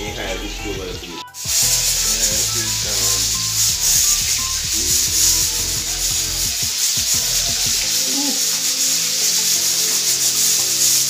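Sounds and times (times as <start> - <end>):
fish frying in hot oil: 1.4 - 11.0.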